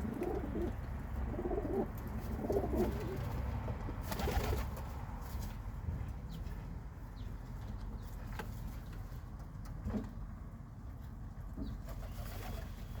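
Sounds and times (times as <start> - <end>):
pigeons cooing: 0.0 - 3.4
low city rumble: 0.0 - 13.0.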